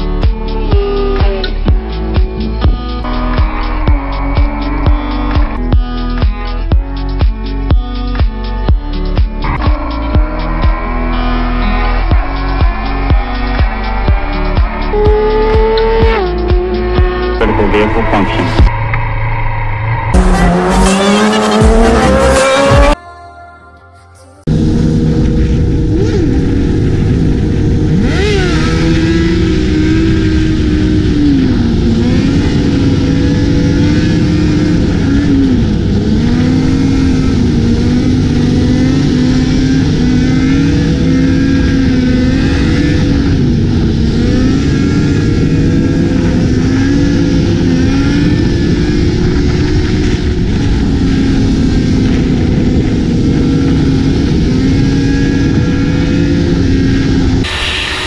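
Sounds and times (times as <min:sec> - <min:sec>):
motorcycle engine revving: 0:00.0 - 0:06.9, 0:08.8 - 0:19.3, 0:19.9 - 0:23.0, 0:24.5 - 0:58.0.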